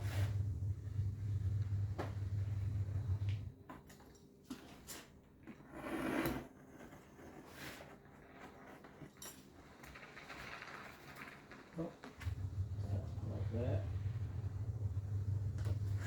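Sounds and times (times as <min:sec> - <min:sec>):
machine low hum: 0:00.0 - 0:03.5, 0:12.2 - 0:16.0.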